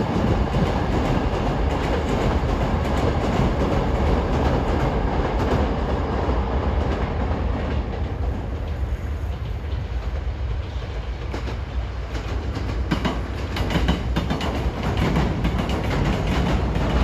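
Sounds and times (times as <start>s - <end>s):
train low rumble: 0.0s - 17.0s
wheels clicking over rail joints: 11.2s - 17.0s.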